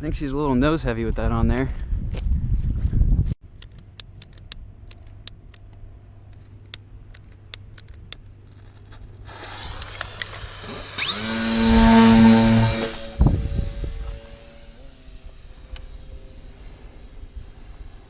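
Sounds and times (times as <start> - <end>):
low hum: 1.7 - 18.0
model plane motor whining: 9.2 - 18.0.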